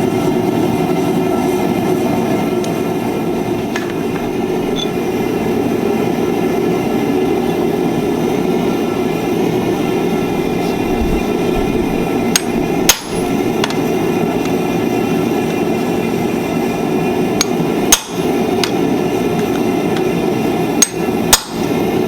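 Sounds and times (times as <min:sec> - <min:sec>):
steady rushing noise: 0:00.0 - 0:17.4.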